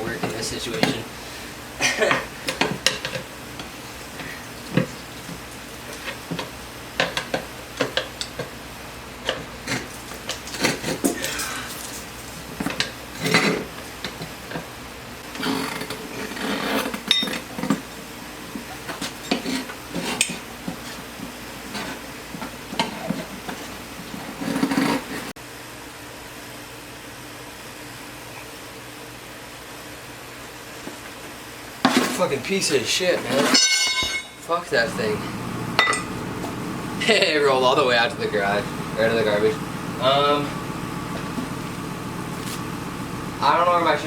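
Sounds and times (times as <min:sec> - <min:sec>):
tire knocking and scraping on rim: 0:34.8 - 0:44.0.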